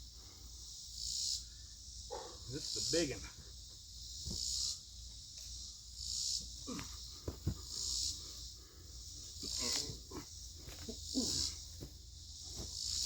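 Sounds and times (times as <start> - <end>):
insects buzzing: 0.0 - 13.0
logs knocking and scraping: 6.7 - 7.7.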